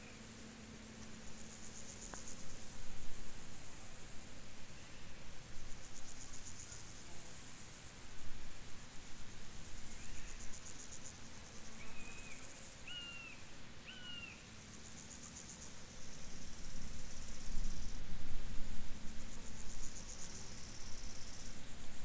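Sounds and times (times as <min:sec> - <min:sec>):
crickets chirping: 0:00.0 - 0:22.0
whistled bird notes: 0:11.8 - 0:14.4.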